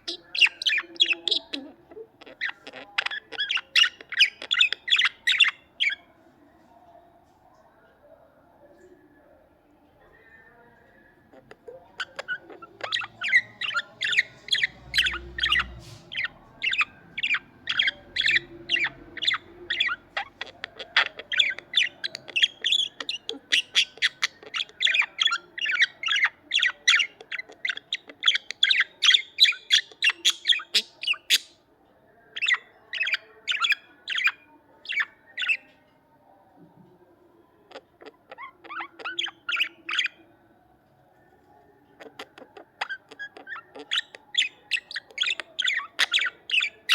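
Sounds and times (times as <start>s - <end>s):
budgerigars chirping: 0.0s - 6.0s, 11.3s - 31.6s, 32.4s - 35.7s, 37.7s - 40.2s, 42.0s - 46.9s.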